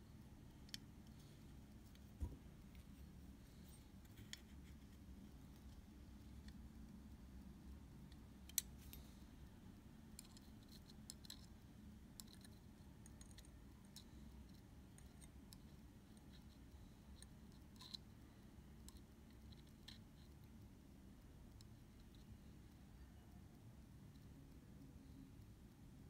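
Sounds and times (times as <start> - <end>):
small tools clicking and ticking: 12.1 - 14.2.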